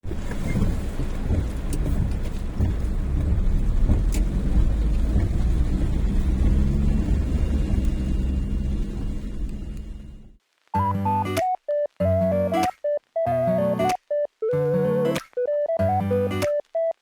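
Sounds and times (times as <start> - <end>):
car engine and road rumble: 0.0 - 10.4.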